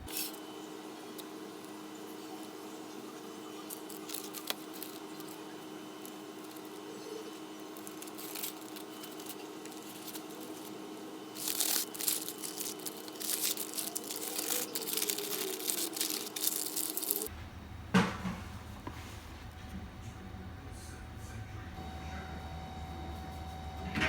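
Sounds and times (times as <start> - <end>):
crinkling rustling handling noise: 0.0 - 17.3
steady low hum: 0.0 - 24.0.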